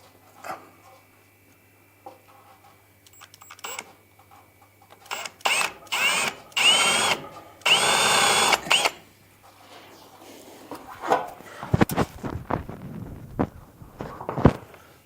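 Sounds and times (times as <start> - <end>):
power drill whining: 5.0 - 9.0.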